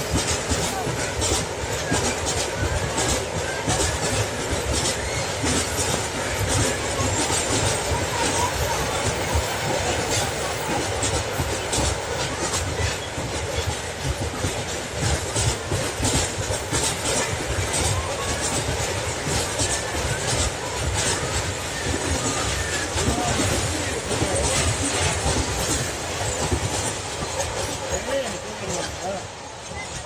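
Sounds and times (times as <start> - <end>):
train rumble: 0.0 - 30.0
train wheels clacking: 0.0 - 30.0.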